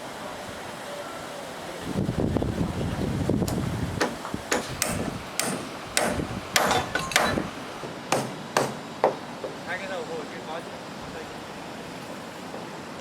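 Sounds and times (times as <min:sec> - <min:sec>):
hammer striking timber: 0:03.5 - 0:07.5, 0:08.1 - 0:09.6.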